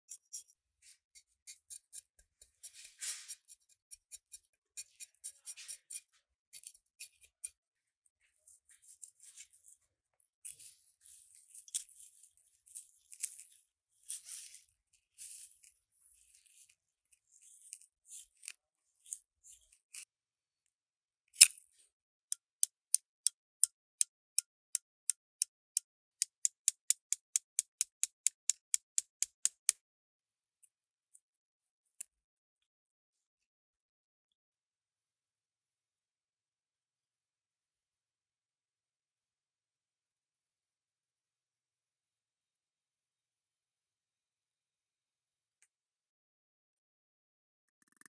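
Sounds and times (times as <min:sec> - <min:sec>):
small parts scratching and tapping: 0:00.1 - 0:07.6, 0:10.4 - 0:20.1, 0:47.7 - 0:48.0.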